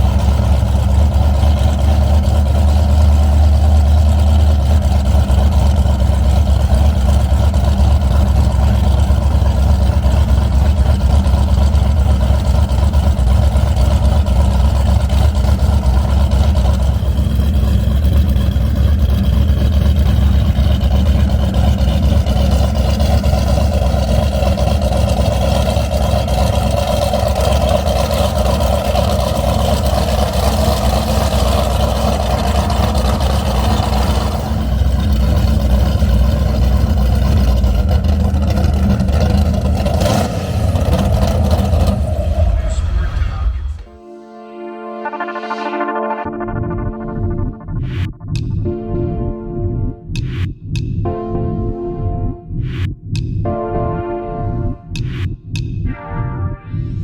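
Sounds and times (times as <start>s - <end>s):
boat engine drone: 0.0s - 50.4s
higher tones drifting in pitch: 22.9s - 38.0s, 40.2s - 50.4s, 51.1s - 52.9s, 53.5s - 57.0s.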